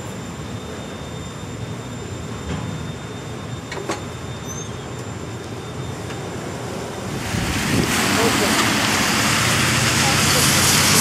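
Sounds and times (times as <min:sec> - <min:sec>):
train rumbling past: 0:00.0 - 0:11.0
heavy rain hiss: 0:07.0 - 0:11.0.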